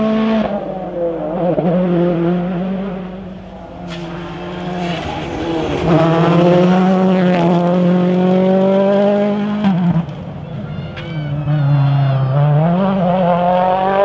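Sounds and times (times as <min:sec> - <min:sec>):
rally car engine at high revs: 0:00.0 - 0:10.4, 0:11.4 - 0:14.0
sharp crack: 0:03.5 - 0:07.1.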